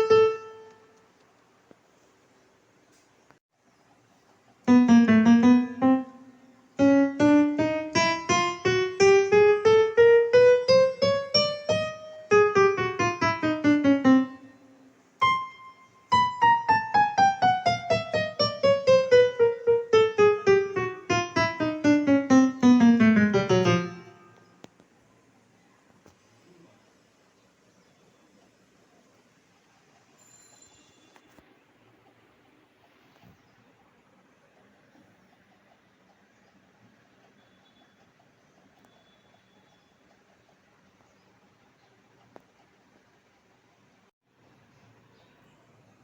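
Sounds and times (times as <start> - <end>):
electronic keyboard piano runs: 0.0 - 1.0, 4.6 - 24.7.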